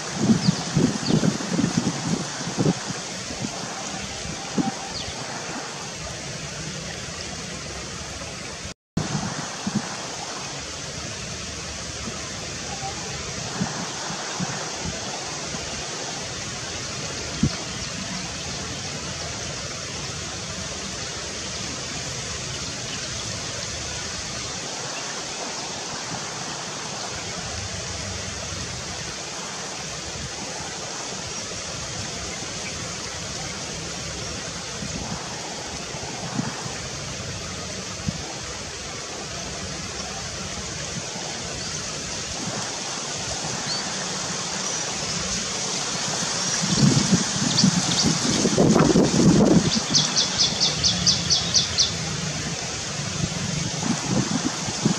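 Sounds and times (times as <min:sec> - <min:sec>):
steady rushing outdoor noise: 0:00.0 - 0:54.9.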